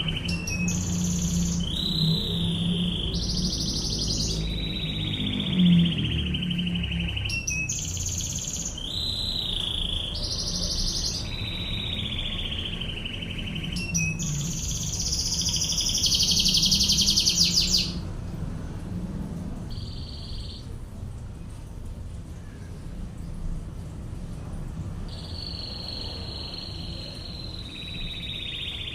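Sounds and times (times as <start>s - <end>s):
canary singing fast trills: 0.0s - 18.1s, 19.7s - 20.8s, 25.0s - 28.9s.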